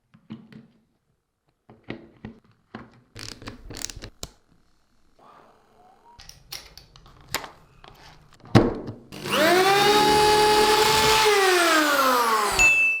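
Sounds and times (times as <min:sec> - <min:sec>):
electric drill motor whining: 0:09.1 - 0:12.8.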